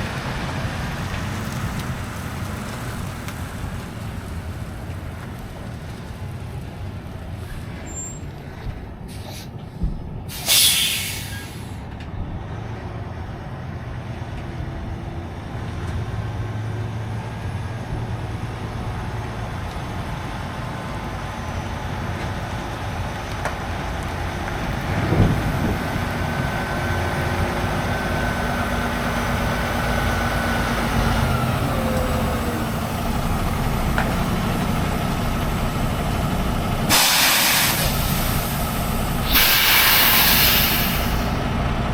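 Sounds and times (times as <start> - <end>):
truck engine and road rumble: 0.0 - 41.9
air brakes hissing: 7.4 - 11.9, 36.9 - 41.4.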